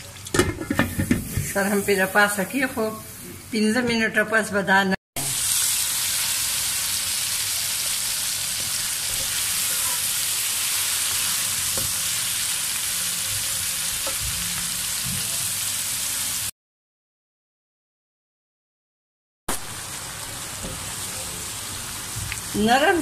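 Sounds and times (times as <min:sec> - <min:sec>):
vegetables sizzling in hot oil: 0:05.2 - 0:16.5, 0:19.5 - 0:23.0.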